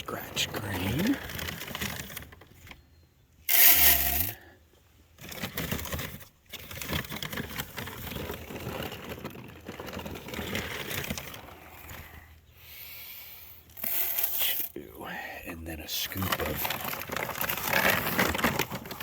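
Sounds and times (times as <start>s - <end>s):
grain rattling being poured: 3.5s - 4.4s, 13.8s - 14.7s.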